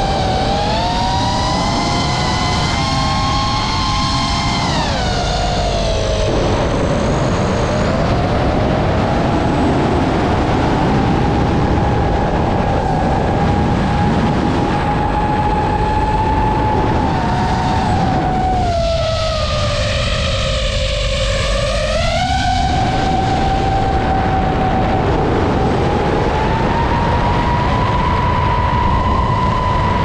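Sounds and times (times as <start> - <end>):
drone propellers whining: 0.0 - 30.0
wind rumble on microphone: 0.0 - 30.0.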